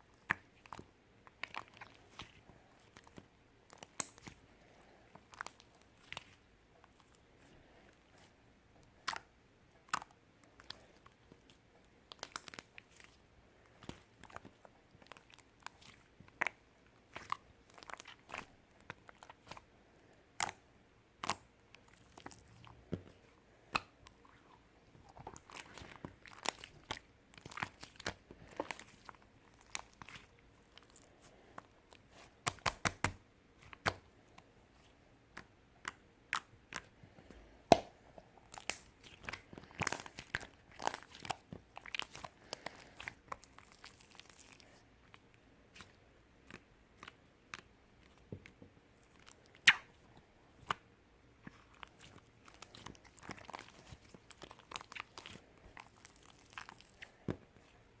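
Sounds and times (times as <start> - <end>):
crisp crunches and clicks: 0.2 - 4.4, 9.0 - 13.2, 21.2 - 34.0, 38.4 - 48.3, 51.4 - 57.8.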